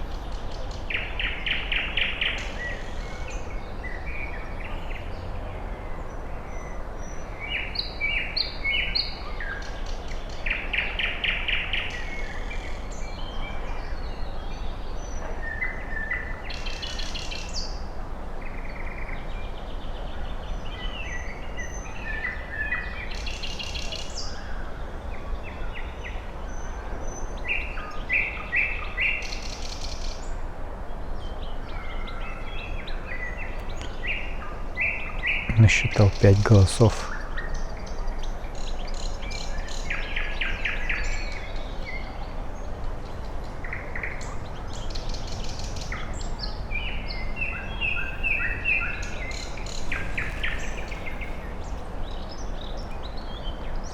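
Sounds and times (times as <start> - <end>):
forest birds singing: 0.0 - 17.8, 25.4 - 53.9
low background hiss: 35.5 - 37.1.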